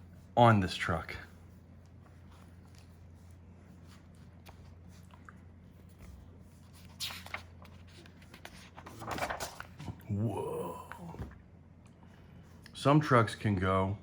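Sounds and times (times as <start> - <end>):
low steady hum: 0.0 - 14.0
book pages rustling: 1.4 - 10.0.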